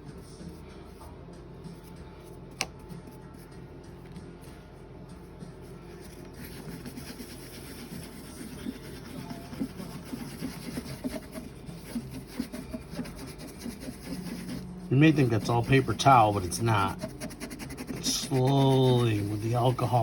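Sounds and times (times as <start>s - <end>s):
paper towel scraping a screen: 6.0s - 20.0s.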